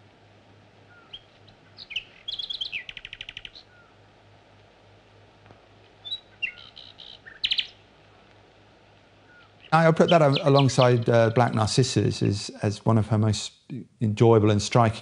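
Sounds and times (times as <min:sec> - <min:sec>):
songbird chirping and trilling: 0:00.8 - 0:04.0, 0:06.0 - 0:07.9, 0:09.2 - 0:11.8.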